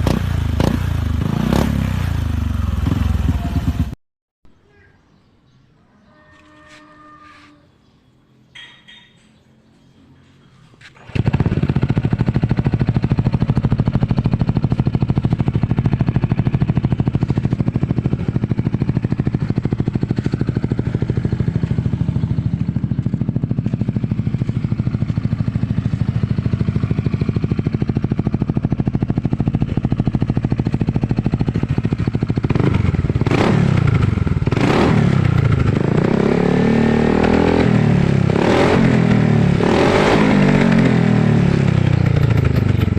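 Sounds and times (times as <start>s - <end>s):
engine revving: 0.0s - 4.0s, 11.0s - 42.9s
scooter engine idling: 0.0s - 4.0s, 11.0s - 36.1s, 40.5s - 42.9s.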